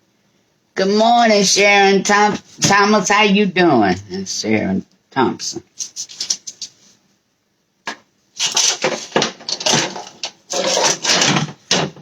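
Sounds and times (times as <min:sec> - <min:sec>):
kitchen scraping and clattering: 0:08.4 - 0:12.0.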